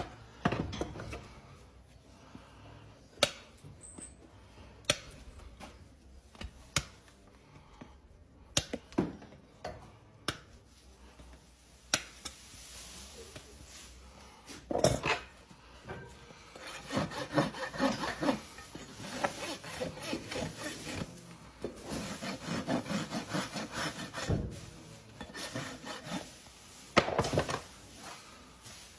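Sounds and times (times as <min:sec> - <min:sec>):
hoof tools clicking and snapping: 0:04.8 - 0:05.4
tool scraping hoof: 0:16.5 - 0:24.5, 0:25.2 - 0:28.1.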